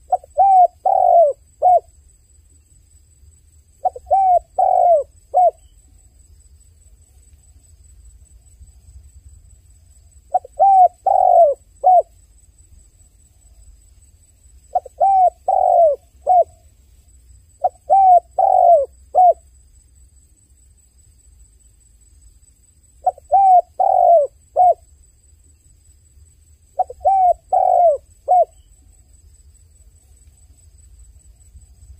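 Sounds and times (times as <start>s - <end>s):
dove cooing: 0.0s - 1.9s, 3.8s - 5.6s, 10.3s - 12.1s, 14.7s - 16.6s, 17.6s - 19.4s, 23.0s - 24.8s, 26.8s - 28.6s.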